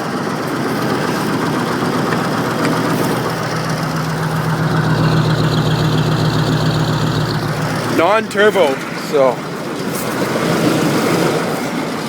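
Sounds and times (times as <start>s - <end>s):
diesel engine running: 0.8s - 9.8s.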